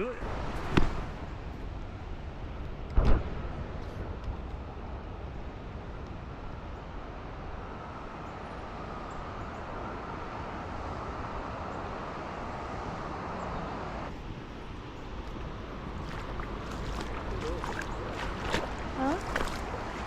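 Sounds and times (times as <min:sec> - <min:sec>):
waterfall: 0:00.0 - 0:20.0
wind rumbling on microphone: 0:00.1 - 0:20.0
creek water rushing: 0:05.6 - 0:20.0.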